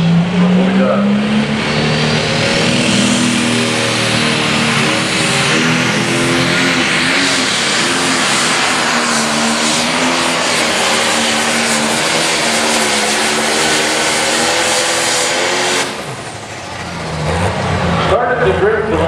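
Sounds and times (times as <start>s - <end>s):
diesel tractor engine at full throttle: 0.0s - 19.0s.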